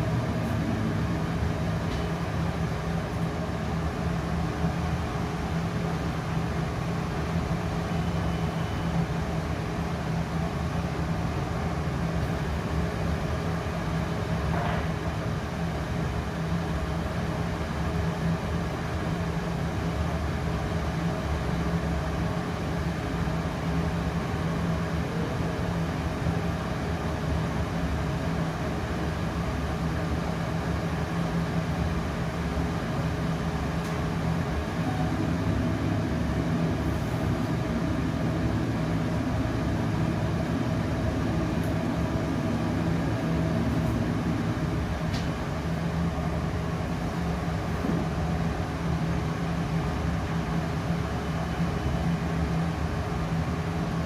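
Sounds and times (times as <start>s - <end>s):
laser cutter humming: 29.0s - 50.2s.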